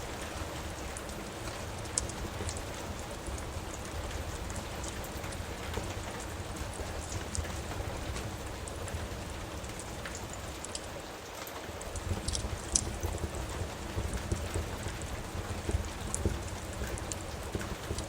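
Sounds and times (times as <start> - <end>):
steady rain falling: 0.0 - 18.0
wood fire crackling: 0.0 - 18.0.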